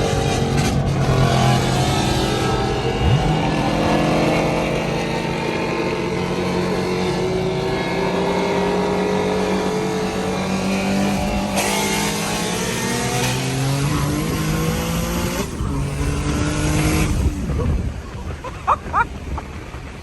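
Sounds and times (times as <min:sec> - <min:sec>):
loud rush of noise: 0:00.0 - 0:20.0.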